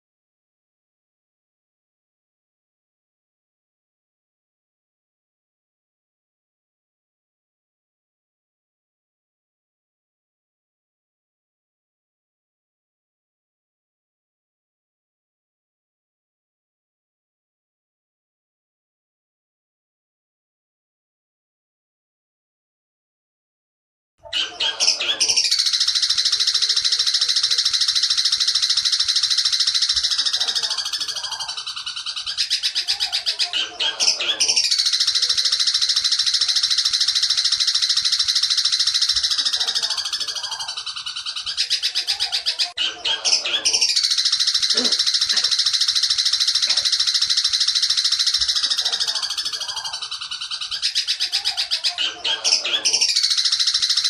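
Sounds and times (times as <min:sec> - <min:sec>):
bird shrill rattling trill: 0:24.8 - 0:52.0, 0:52.6 - 0:54.0.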